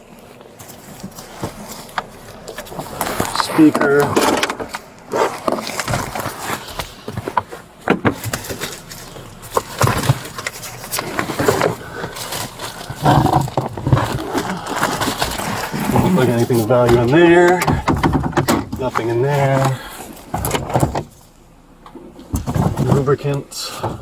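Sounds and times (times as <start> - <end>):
objects being handled in a car: 0.0 - 24.0.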